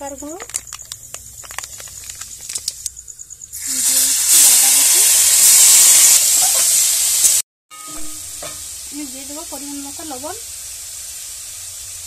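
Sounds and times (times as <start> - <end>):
spices crackling in oil: 0.0 - 7.4
loud hissing sizzle of oil: 3.5 - 7.4, 8.2 - 12.0.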